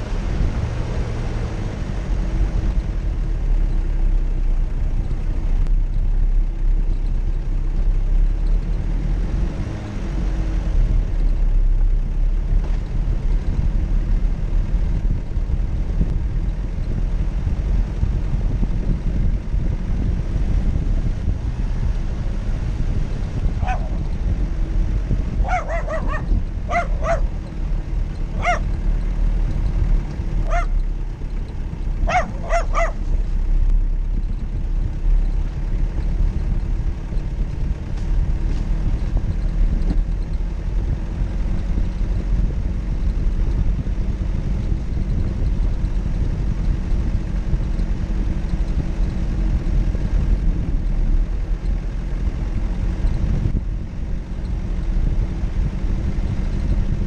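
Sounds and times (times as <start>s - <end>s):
off-road vehicle engine rumble: 0.0s - 57.0s
dog barking: 23.6s - 24.1s, 25.4s - 27.4s, 28.4s - 28.7s, 30.5s - 30.8s, 32.0s - 33.0s.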